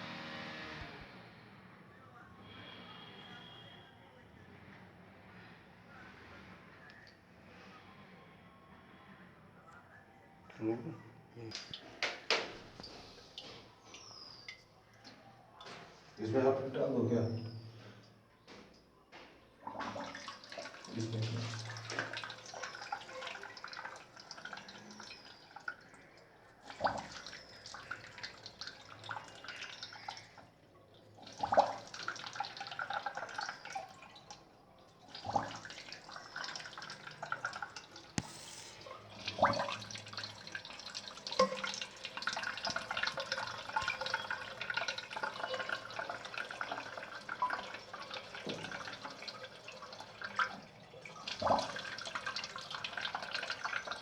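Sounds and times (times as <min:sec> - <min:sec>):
water running in toilet cistern: 0:10.6 - 0:54.0.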